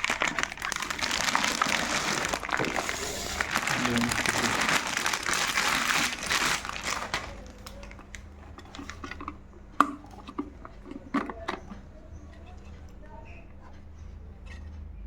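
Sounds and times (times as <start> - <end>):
plastic packaging crinkling: 0.0 - 9.3
clicks and knocks of handled items: 0.0 - 14.9.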